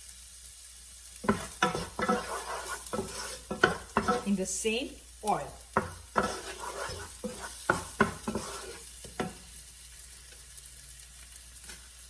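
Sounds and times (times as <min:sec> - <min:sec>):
onion sizzling in hot oil: 0:00.0 - 0:12.0
spoon scraping a pan: 0:01.2 - 0:04.4, 0:05.7 - 0:09.4.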